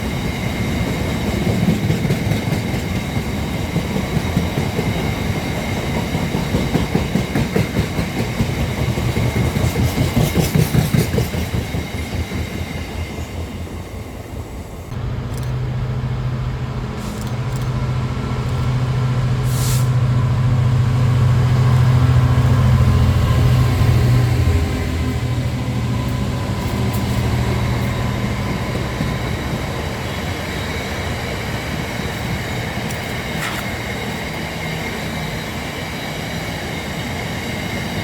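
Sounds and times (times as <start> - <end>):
train wheels clattering: 0.0 - 13.7, 14.9 - 35.7
train engine hum: 0.0 - 38.0
brief hiss: 19.4 - 20.0.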